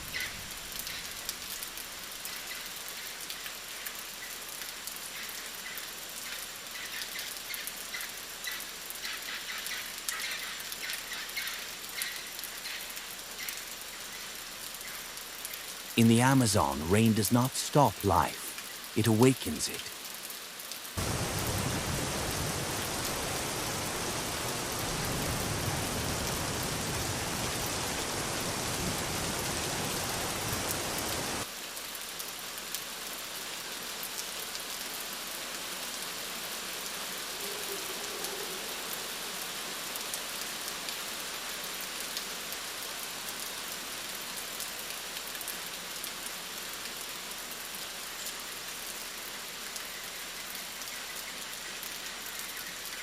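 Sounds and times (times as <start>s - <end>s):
rain falling: 0.0s - 53.0s
raindrop ticks: 0.1s - 21.0s.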